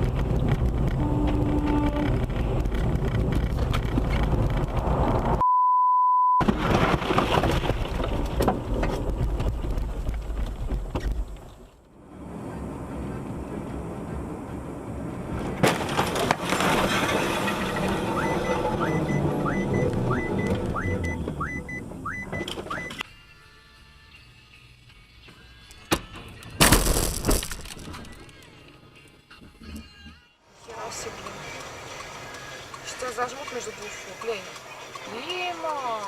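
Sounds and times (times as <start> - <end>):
road noise inside car: 0.0 - 5.4, 8.0 - 23.1, 24.2 - 36.0
high censor beep: 5.4 - 6.4, 18.2 - 23.0.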